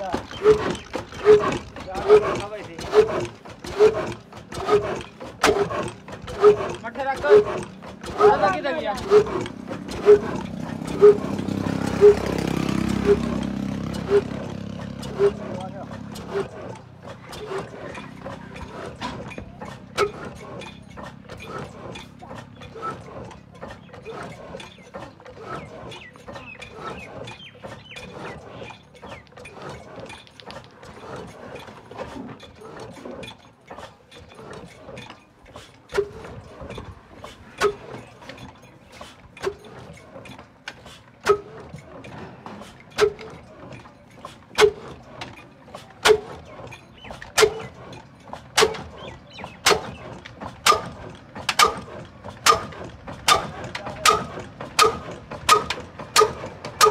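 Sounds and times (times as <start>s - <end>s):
sharp metallic knocks: 42.9s - 43.8s, 44.5s - 56.9s.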